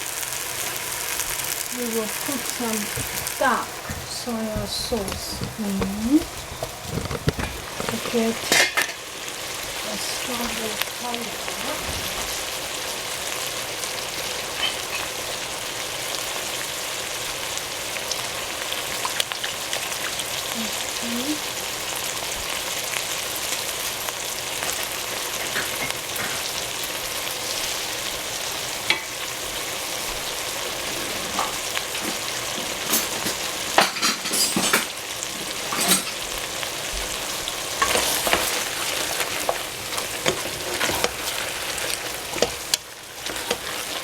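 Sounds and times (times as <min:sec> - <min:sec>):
eggplant sizzling in hot oil: 0:00.0 - 0:44.0
spatula scraping a pan: 0:01.9 - 0:09.0, 0:30.6 - 0:34.3, 0:37.6 - 0:44.0.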